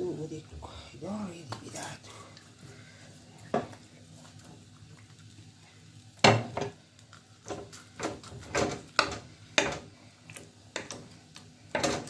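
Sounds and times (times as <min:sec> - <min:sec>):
dishes and utensils clattering: 0:07.5 - 0:09.8, 0:11.8 - 0:12.0.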